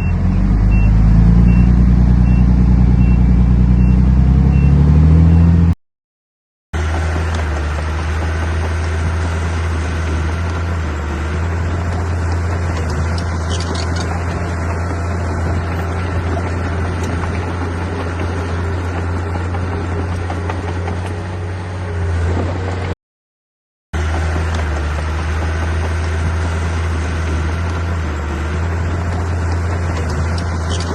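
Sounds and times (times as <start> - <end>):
diesel engine humming: 0.0 - 5.8, 6.8 - 22.9, 24.0 - 30.9.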